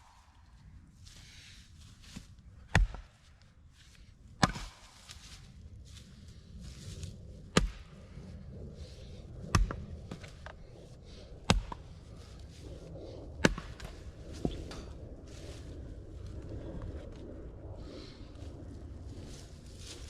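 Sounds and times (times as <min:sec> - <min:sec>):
axe splitting wood: 0:04.4 - 0:04.8.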